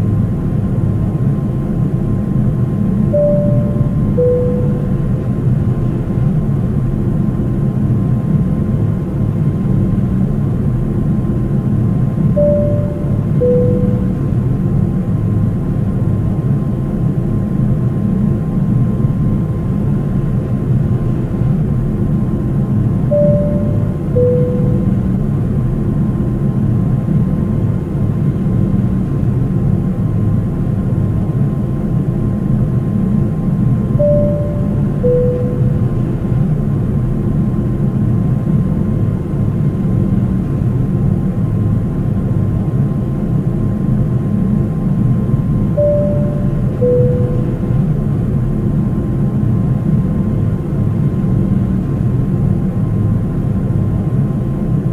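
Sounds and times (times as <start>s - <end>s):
airliner cabin roar: 0.0s - 54.9s
faint constant whine: 0.0s - 54.9s
faint steady whine: 2.4s - 5.7s, 12.0s - 15.1s, 22.8s - 25.6s, 33.8s - 36.5s, 45.6s - 48.3s
two short tones: 3.1s - 5.1s, 12.4s - 14.4s, 23.1s - 25.2s, 34.0s - 36.0s, 45.8s - 47.8s
cabin chime: 3.2s - 5.0s, 12.4s - 14.2s, 23.1s - 25.1s, 34.0s - 35.9s, 45.8s - 47.7s.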